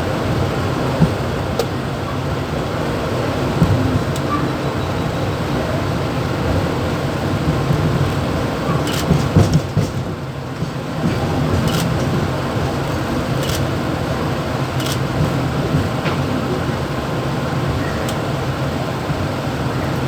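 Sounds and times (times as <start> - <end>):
train rumbling: 0.0 - 20.0
sharp clicks and rattles: 8.0 - 10.1, 11.1 - 13.8, 14.7 - 15.4.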